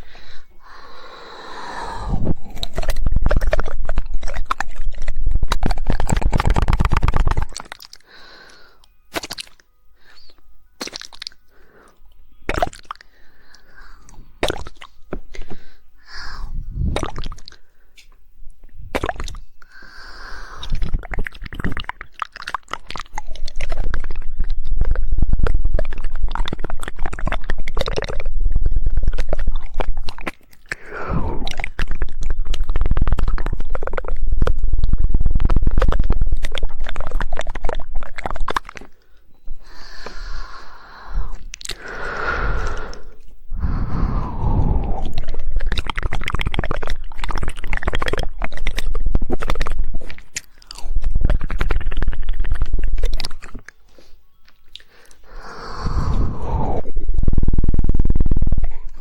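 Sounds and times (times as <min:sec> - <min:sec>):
rapid tongue clicks: 0:00.0 - 0:59.0
wet mouth noises: 0:00.0 - 0:59.0.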